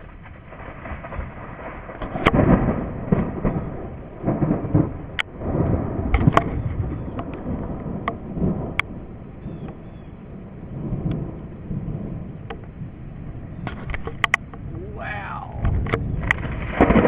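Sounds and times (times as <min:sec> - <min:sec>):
thunder rumbling: 0:00.0 - 0:17.0
sharp clicks: 0:13.6 - 0:14.6.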